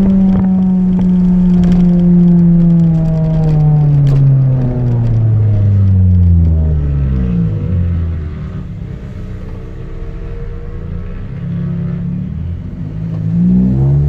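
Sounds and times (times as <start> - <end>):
car engine revving down: 0.0 - 14.0.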